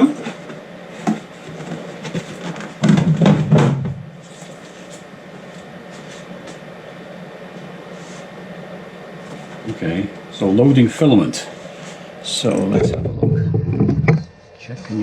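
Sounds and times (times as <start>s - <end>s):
low hum: 12.5s - 14.8s.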